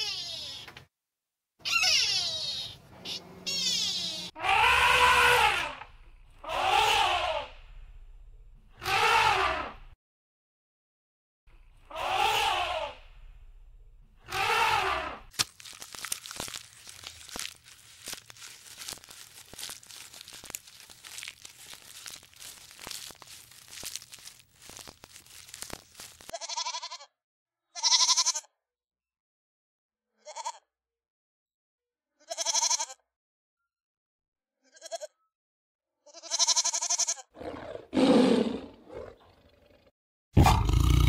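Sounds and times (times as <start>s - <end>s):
short pitched animal calls: 1.6s - 5.8s
crackling rustling noise: 15.3s - 26.3s.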